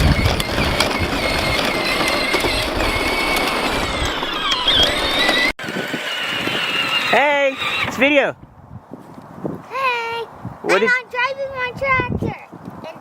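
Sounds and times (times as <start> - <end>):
electric toy tractor motor whine: 0.0 - 8.0.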